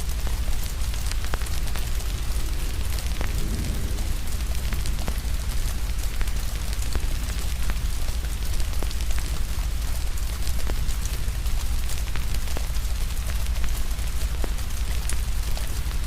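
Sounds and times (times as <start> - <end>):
steady rain: 0.0 - 16.0
wood fire crackling: 0.2 - 16.0
low rumble: 0.5 - 9.6.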